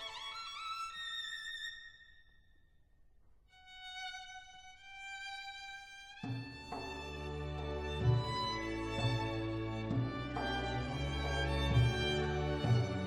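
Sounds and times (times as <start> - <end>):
solo violin playing: 3.6 - 13.0.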